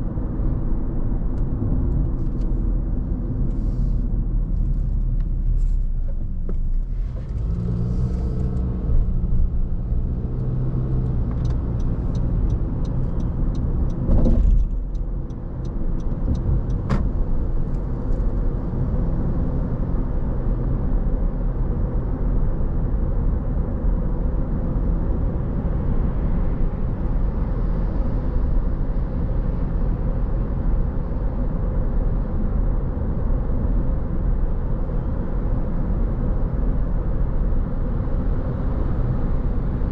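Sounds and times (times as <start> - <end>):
car engine and tyre rumble: 0.0 - 39.9
thump: 16.9 - 17.1.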